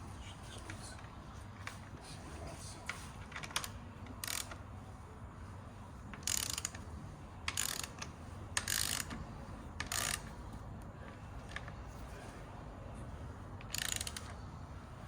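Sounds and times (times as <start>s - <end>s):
ratchet wrench clicking: 3.4s - 4.6s, 6.2s - 6.8s, 7.5s - 9.2s, 9.8s - 10.3s, 13.7s - 14.4s.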